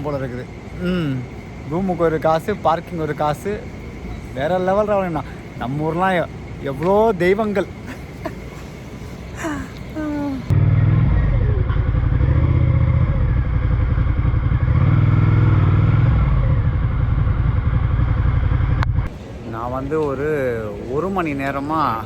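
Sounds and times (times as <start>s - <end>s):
motorcycle engine running: 10.5s - 19.1s.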